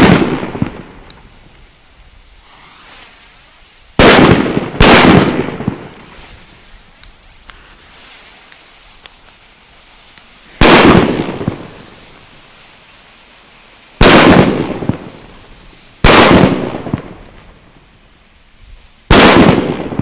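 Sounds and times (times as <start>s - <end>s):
loud firecracker bangs echoing: 0.0s - 1.6s, 4.0s - 6.8s, 10.4s - 12.5s, 14.0s - 17.9s, 19.1s - 20.0s.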